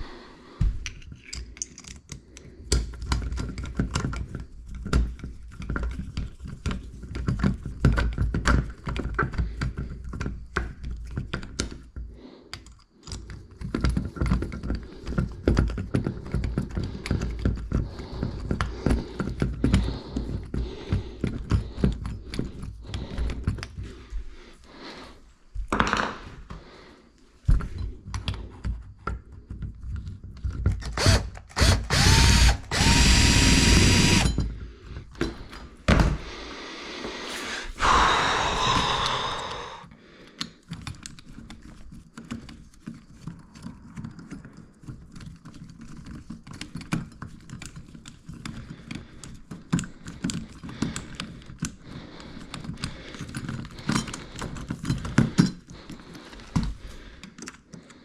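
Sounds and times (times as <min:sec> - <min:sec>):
knocks and clatter of hand work: 0:00.6 - 0:23.8, 0:25.6 - 0:26.6
power drill whining: 0:30.8 - 0:34.4.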